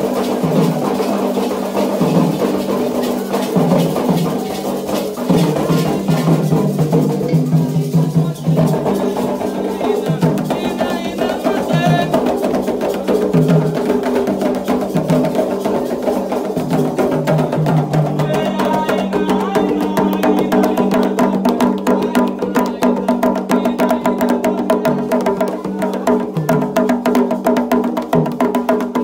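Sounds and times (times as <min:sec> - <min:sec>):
voices singing a chant: 0:00.0 - 0:13.2, 0:17.2 - 0:27.0
hand drums: 0:00.0 - 0:29.0.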